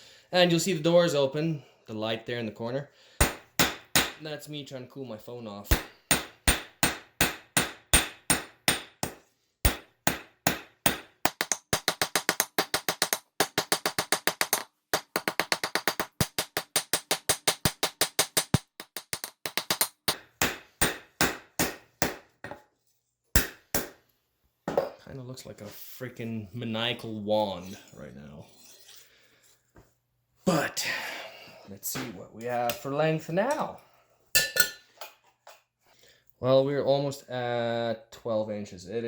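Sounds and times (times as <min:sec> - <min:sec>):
hammer striking metal on anvil: 0:03.2 - 0:04.2, 0:05.7 - 0:11.9.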